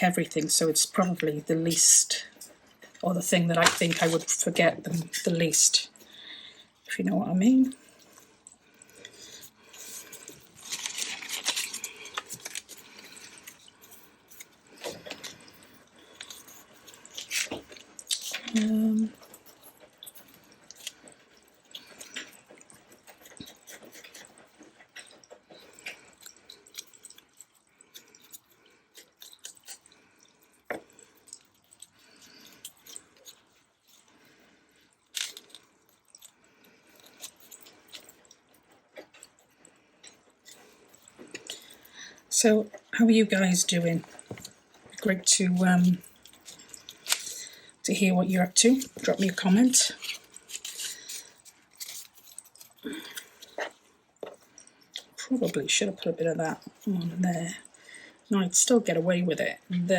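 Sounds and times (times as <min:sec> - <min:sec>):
paper rustling: 0:03.6 - 0:04.4, 0:09.8 - 0:13.5.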